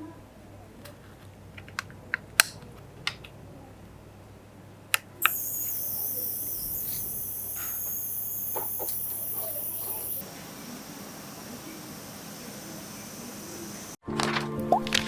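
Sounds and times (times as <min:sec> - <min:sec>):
sharp clicks: 0:05.0 - 0:10.2
electric device hissing and whining: 0:05.2 - 0:10.3.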